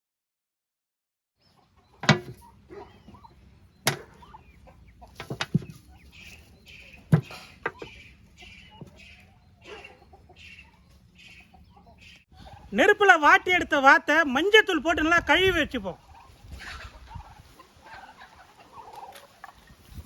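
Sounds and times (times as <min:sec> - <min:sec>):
chickens clucking: 0:01.4 - 0:20.0
sharp knocks: 0:02.0 - 0:02.4.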